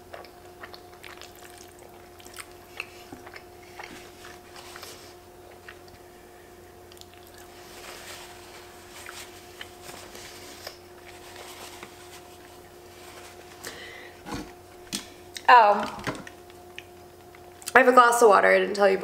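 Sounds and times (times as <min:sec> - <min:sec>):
chewing food: 0:00.0 - 0:06.1, 0:06.8 - 0:12.8
faint steady hum: 0:00.0 - 0:19.0.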